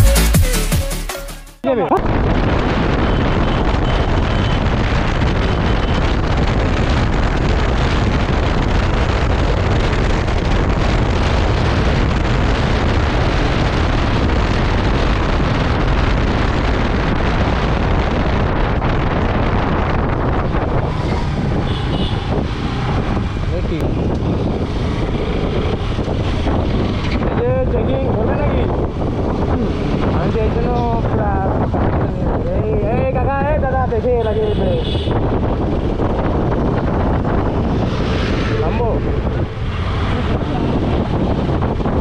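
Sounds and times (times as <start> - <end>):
wind buffeting microphone: 1.9 - 42.0
motorcycle engine: 19.7 - 27.4, 34.9 - 42.0.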